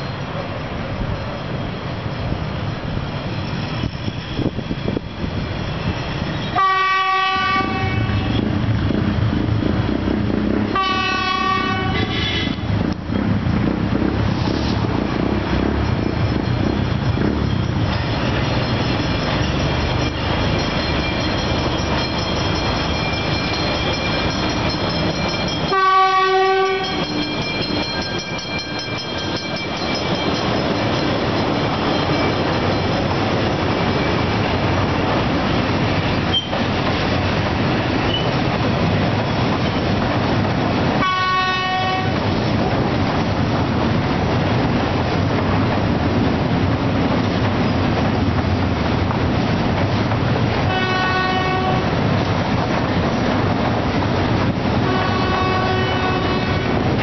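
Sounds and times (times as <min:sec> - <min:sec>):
freight train passing: 0:00.0 - 0:57.0
train wheel and car noise: 0:00.0 - 0:57.0
locomotive horn: 0:06.5 - 0:08.5, 0:10.7 - 0:12.8, 0:25.7 - 0:27.1, 0:41.0 - 0:42.2, 0:50.7 - 0:52.0, 0:54.8 - 0:57.0.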